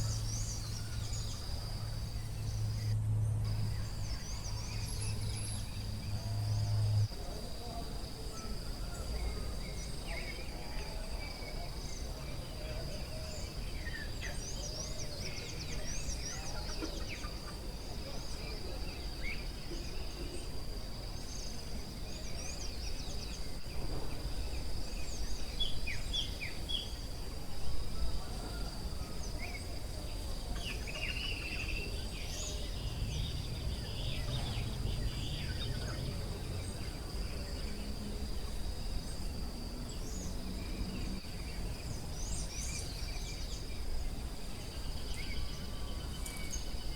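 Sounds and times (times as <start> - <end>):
high insect drone: 0.0 - 46.9
low background rumble: 31.8 - 41.0.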